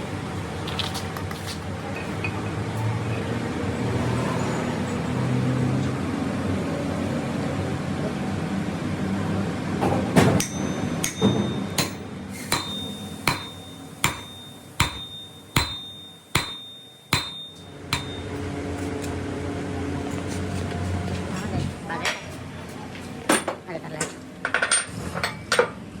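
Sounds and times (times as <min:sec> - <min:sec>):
workshop machine noise: 0:00.0 - 0:26.0
hammer striking steel: 0:10.3 - 0:18.5.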